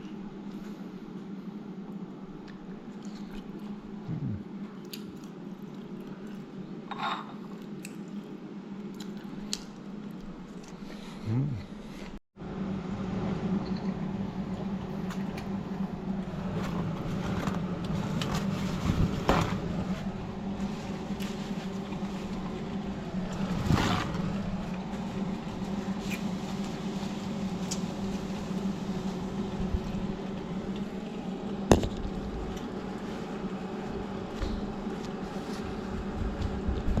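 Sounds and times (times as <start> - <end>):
low machine hum: 0.0 - 37.0.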